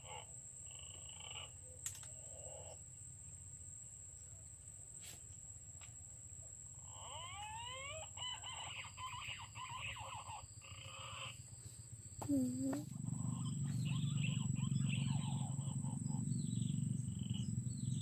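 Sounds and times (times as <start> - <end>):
high-pitched whine: 12.4 - 18.0.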